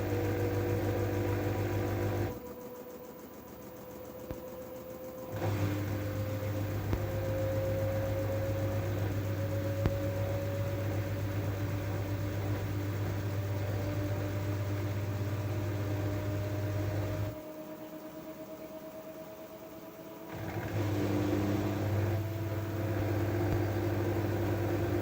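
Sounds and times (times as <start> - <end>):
washing machine spin whine: 0.0 - 25.0
low pump hum: 5.3 - 17.4, 20.3 - 25.0.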